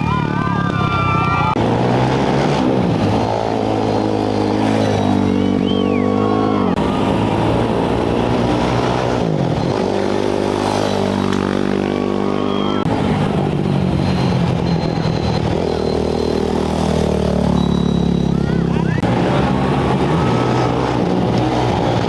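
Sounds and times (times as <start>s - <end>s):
motorcycle engines revving: 0.0s - 22.0s.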